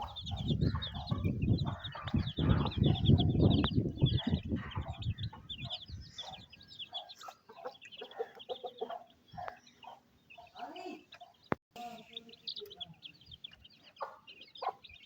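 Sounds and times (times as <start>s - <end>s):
chicks peeping: 0.0s - 15.0s
hen clucking: 0.0s - 15.0s.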